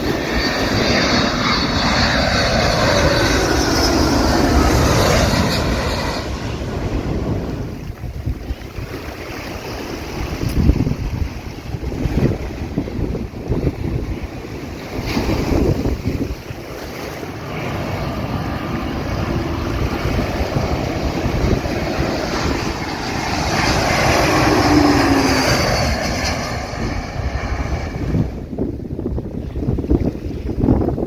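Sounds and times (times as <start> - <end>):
beach surf: 0.0 - 31.0
wind buffeting microphone: 0.0 - 31.0
engine passing by: 0.1 - 7.8, 17.4 - 28.5.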